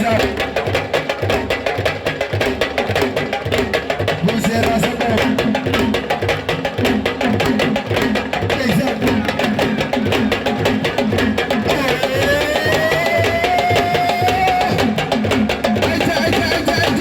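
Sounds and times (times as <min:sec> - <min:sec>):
fast dense drumming: 0:00.0 - 0:17.0.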